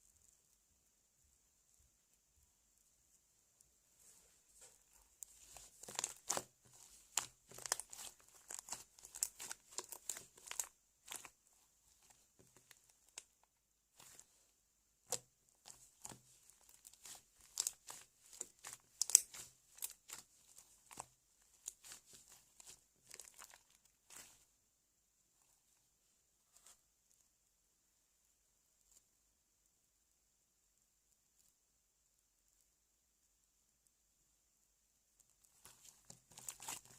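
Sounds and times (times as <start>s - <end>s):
slime squishing with wet clicks: 5.2s - 11.4s, 12.0s - 14.4s, 15.0s - 24.4s, 35.2s - 36.9s.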